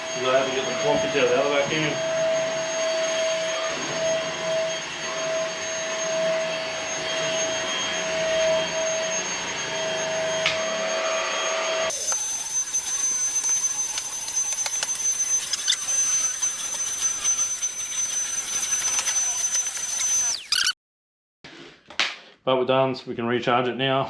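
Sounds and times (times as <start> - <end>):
stick vacuum whining: 11.9 - 20.8.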